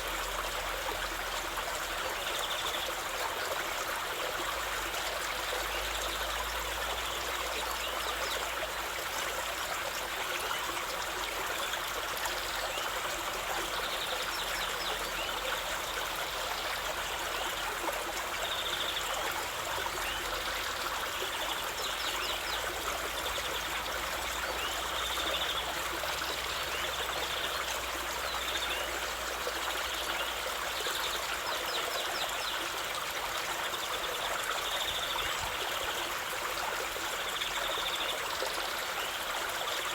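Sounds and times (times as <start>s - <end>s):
stream flowing and trickling: 0.0s - 39.9s.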